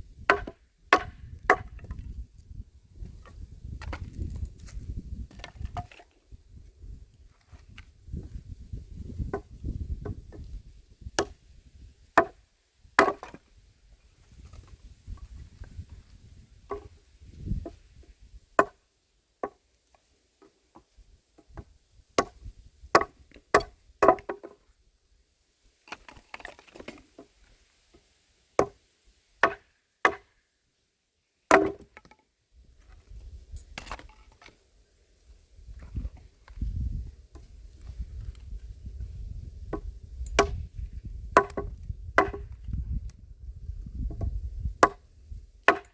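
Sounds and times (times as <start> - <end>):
axe chopping wood: 0.2 - 2.0, 11.2 - 11.4, 12.2 - 12.4, 13.0 - 13.4, 18.6 - 18.8, 22.2 - 24.6, 29.4 - 30.3, 31.5 - 32.1, 33.8 - 34.1, 39.8 - 40.7, 41.4 - 42.6, 44.1 - 45.9.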